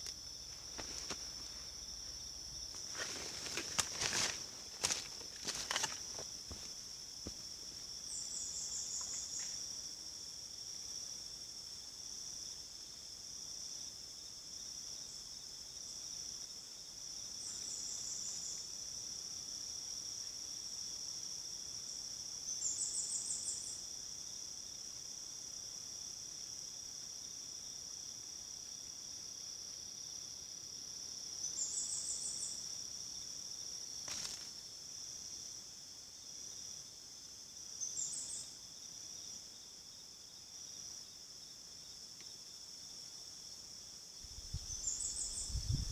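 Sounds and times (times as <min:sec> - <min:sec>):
insect chorus pulsing drone: 0:00.0 - 0:45.9.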